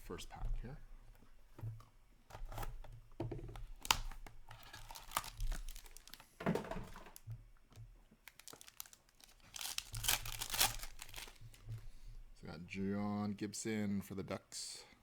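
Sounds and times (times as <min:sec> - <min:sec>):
cards rustling and clicking: 0:02.3 - 0:07.2, 0:08.2 - 0:12.0
wrapper tearing and crinkling: 0:03.7 - 0:06.2, 0:08.2 - 0:11.6.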